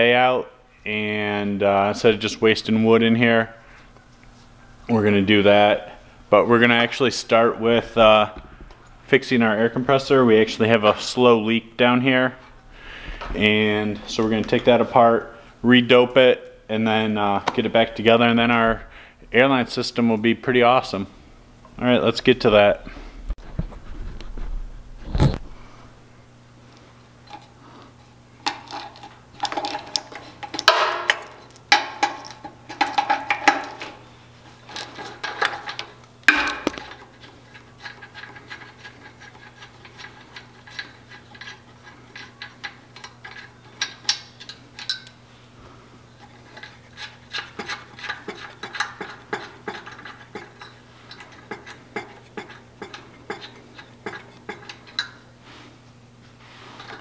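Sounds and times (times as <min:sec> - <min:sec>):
metal tools clinking: 0:34.7 - 0:45.1.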